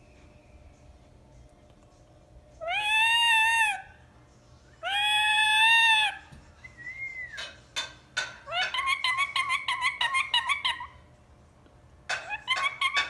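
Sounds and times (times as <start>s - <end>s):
parakeet whistling and chattering: 2.6s - 3.9s, 4.8s - 7.5s, 8.4s - 11.0s, 12.1s - 13.0s.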